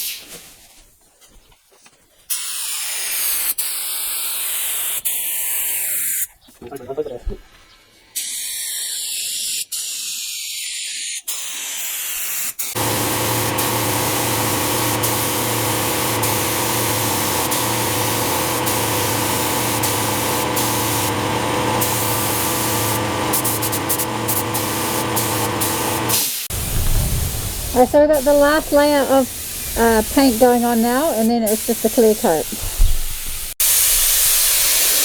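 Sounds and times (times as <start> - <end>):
paint spray gun hissing: 11.5 - 35.0
low mechanical hum: 12.8 - 32.3.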